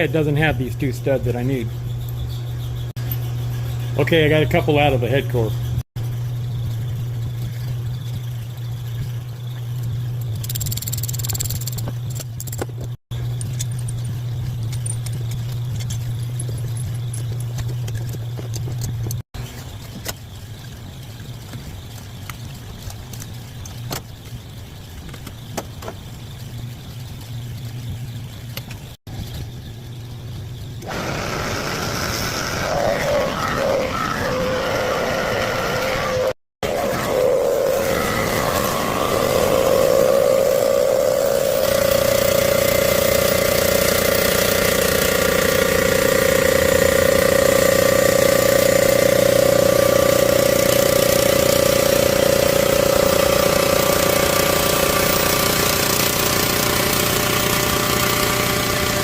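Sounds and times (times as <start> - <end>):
machinery motor hum: 30.6 - 59.0
loud hissing noise: 30.9 - 42.1.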